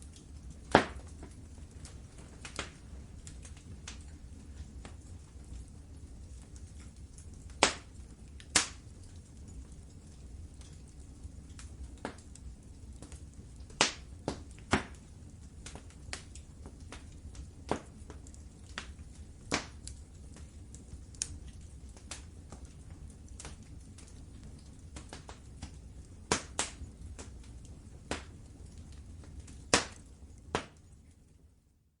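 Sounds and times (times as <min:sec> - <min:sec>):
low rumble of flames: 0:00.0 - 0:32.0
wood fire crackling: 0:00.0 - 0:32.0.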